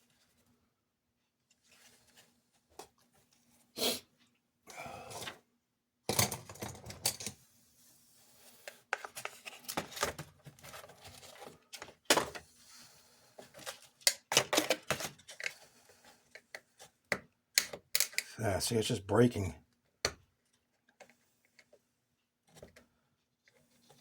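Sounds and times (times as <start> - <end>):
plastic toy parts clicking: 17.6 - 18.3.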